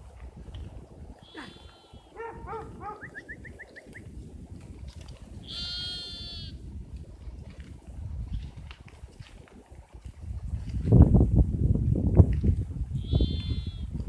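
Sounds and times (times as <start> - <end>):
sheep bleating: 1.2 - 2.2, 5.4 - 6.6, 13.0 - 14.0.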